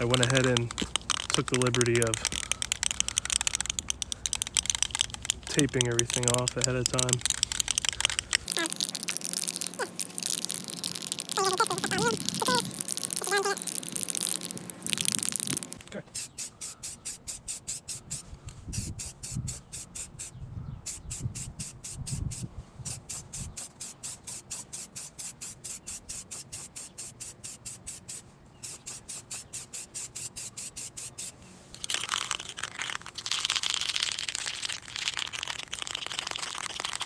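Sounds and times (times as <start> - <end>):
spray can ball rattling: 0.0 - 20.3, 20.9 - 37.0
spray can hissing: 0.0 - 20.3, 20.9 - 37.0.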